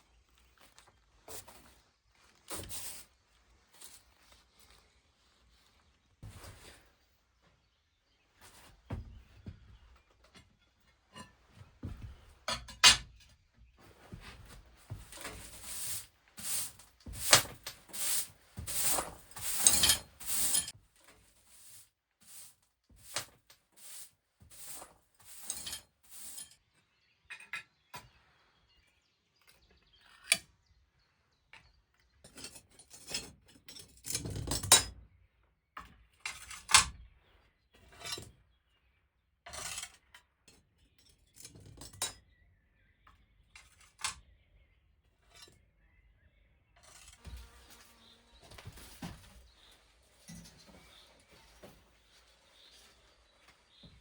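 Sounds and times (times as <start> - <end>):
hard objects clinking and knocking: 14.9 - 20.7.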